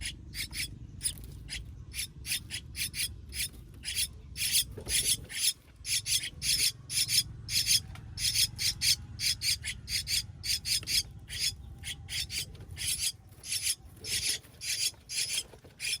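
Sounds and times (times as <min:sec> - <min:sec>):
baby bird raspy calls: 0:00.0 - 0:16.0.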